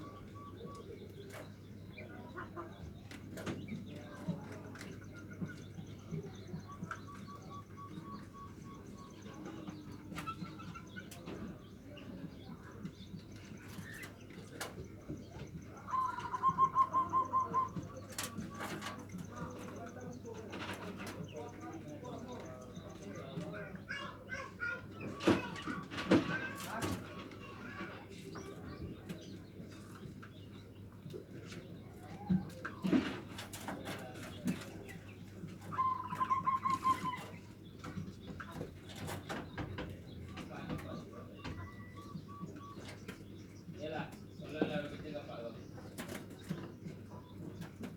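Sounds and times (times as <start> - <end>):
faint chirps: 4.0 - 25.2
dove cooing: 15.4 - 19.7, 35.6 - 37.6.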